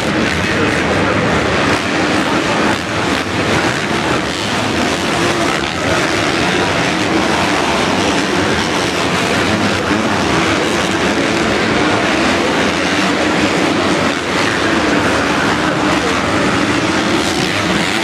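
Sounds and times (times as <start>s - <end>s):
motocross bikes racing: 0.0s - 18.0s.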